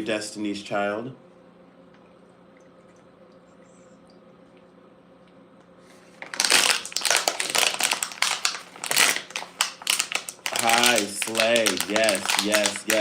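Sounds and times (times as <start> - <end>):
faint steady hum: 0.0 - 13.0
crinkling and crushing: 5.9 - 13.0.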